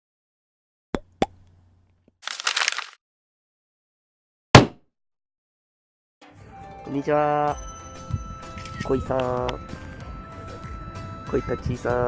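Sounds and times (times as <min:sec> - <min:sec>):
loud thump: 0:04.6 - 0:04.8.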